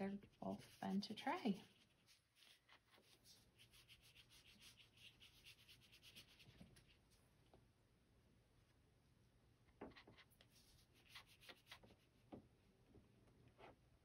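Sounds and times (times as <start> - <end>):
paintbrush scratching on paper: 0.0 - 7.2, 9.9 - 12.3.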